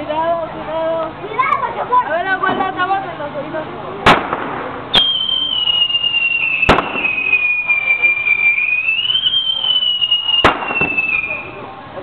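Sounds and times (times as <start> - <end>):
firework bangs: 4.0 - 11.6
whistling firework: 4.9 - 11.7.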